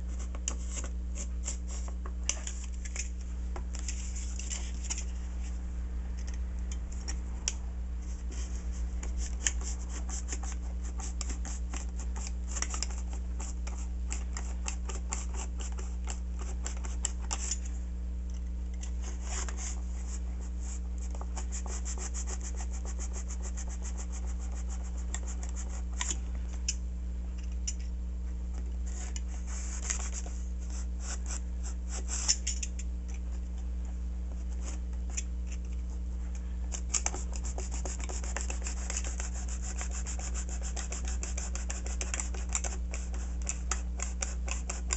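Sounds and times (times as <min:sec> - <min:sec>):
steady low hum: 0:00.0 - 0:44.9
knife cutting foam: 0:36.7 - 0:44.9.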